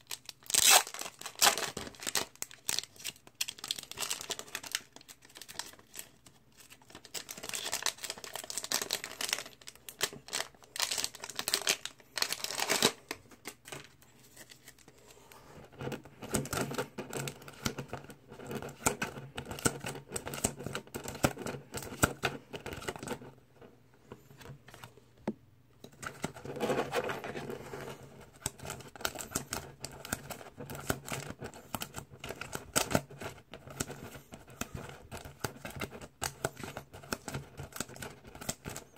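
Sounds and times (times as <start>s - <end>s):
plastic wrapping crinkling and tearing: 0.0s - 14.9s.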